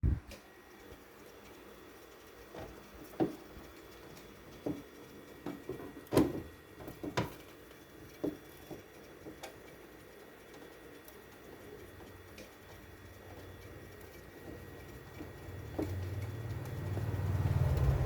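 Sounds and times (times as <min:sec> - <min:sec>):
fridge parts knocking and clunking: 0:02.6 - 0:07.5.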